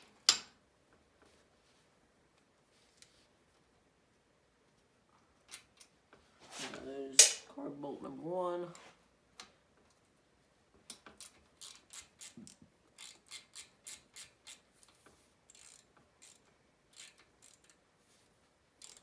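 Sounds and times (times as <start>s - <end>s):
hand ratchet clicking: 11.2s - 14.6s, 15.5s - 17.8s, 18.8s - 19.0s.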